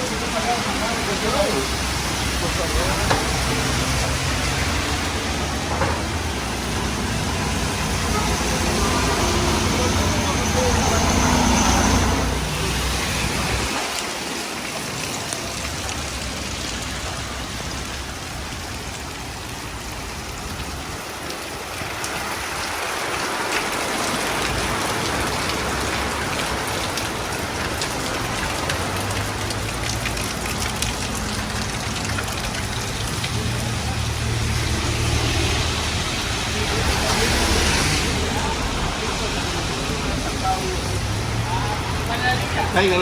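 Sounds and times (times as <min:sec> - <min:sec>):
heavy rain pattering: 0:00.0 - 0:43.0.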